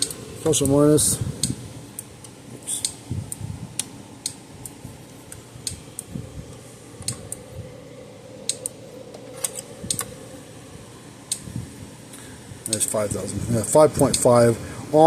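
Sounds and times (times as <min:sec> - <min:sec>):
electric fence energizer clicking: 0:00.0 - 0:07.6, 0:08.4 - 0:10.2, 0:11.2 - 0:13.1, 0:13.7 - 0:14.4
faint hum: 0:00.0 - 0:15.0.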